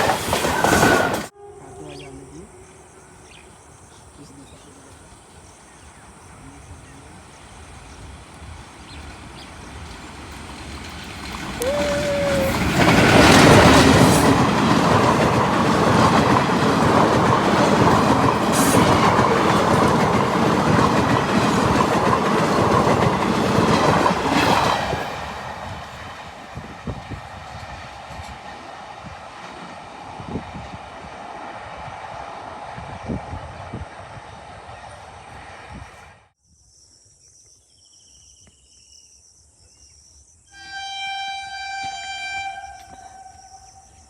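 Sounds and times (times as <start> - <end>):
train wheels clattering over rails: 0.0 - 1.3, 7.6 - 29.8
train horn: 0.7 - 3.4, 18.0 - 20.8, 40.5 - 44.0.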